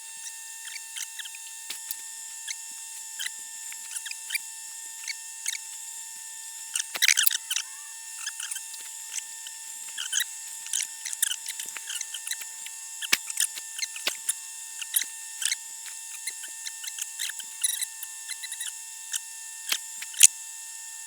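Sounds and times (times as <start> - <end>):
faint machine whine: 0.0 - 21.0
scratches and clicks on metal: 0.1 - 5.9, 6.6 - 20.3.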